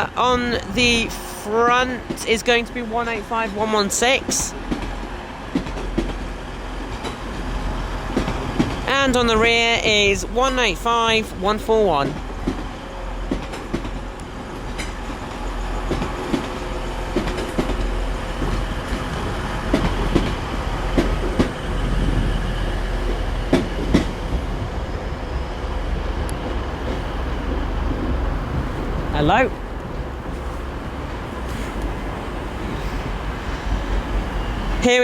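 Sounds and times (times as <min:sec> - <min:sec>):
train rumbling: 0:00.0 - 0:35.0
train wheels clicking over rail joints: 0:04.3 - 0:07.4, 0:08.0 - 0:08.9, 0:13.3 - 0:24.4.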